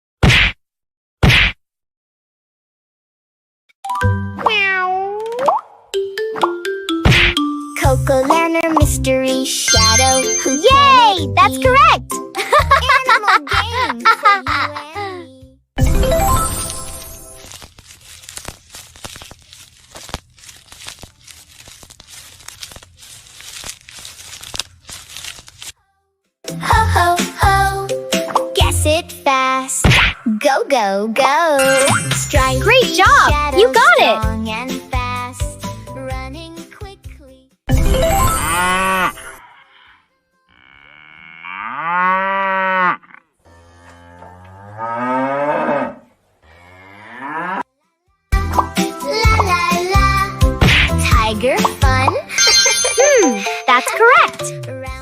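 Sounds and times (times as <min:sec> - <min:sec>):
plastic bags crinkling: 0:16.5 - 0:25.8.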